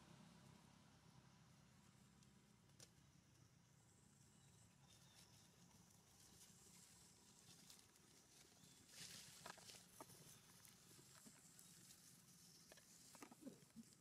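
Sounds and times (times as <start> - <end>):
faint background hum and hiss: 0.0 - 14.0.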